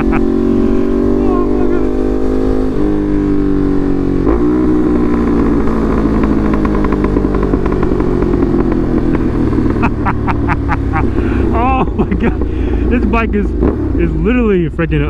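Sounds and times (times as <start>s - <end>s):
motorcycle engine running loud: 0.0s - 14.7s
exhaust pops and crackles: 4.2s - 10.4s, 11.0s - 14.4s.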